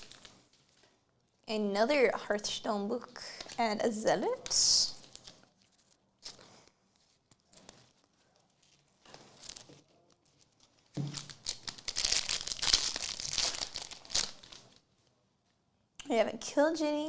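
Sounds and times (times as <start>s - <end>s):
wrapper crinkling and tearing: 0.0s - 0.9s, 4.2s - 14.9s.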